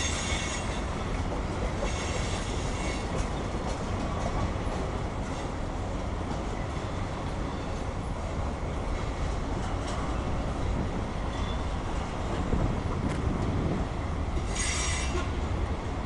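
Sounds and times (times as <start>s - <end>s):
freight train rumbling past: 0.0s - 16.0s
wheel squeal: 14.5s - 15.3s.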